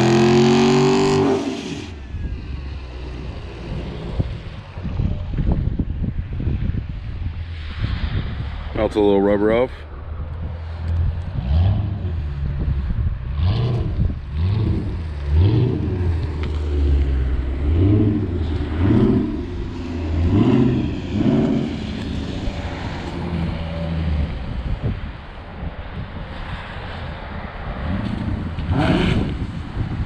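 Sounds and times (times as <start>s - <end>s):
car engine revving: 0.0s - 4.9s, 10.8s - 25.0s.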